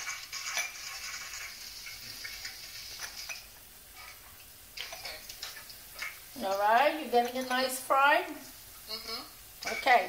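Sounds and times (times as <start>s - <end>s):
oil crackles: 0.0s - 3.4s
garlic sizzling in hot oil: 0.0s - 10.0s.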